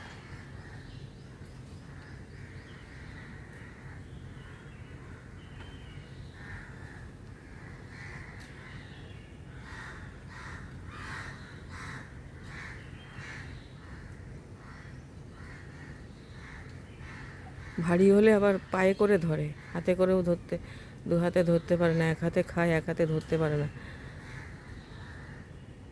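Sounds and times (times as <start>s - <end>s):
crows cawing: 1.9s - 5.4s, 6.3s - 18.8s, 19.4s - 21.0s, 23.2s - 25.6s.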